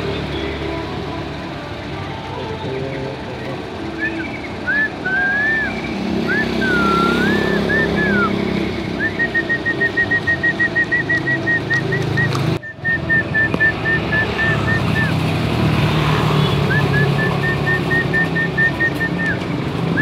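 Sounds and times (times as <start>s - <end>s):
road traffic noise: 0.0s - 20.0s
songbird whistling: 3.8s - 15.2s, 16.4s - 20.0s.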